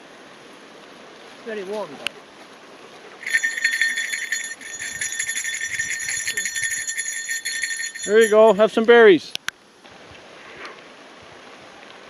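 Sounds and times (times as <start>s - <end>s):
bear bell jingling: 3.2s - 8.9s.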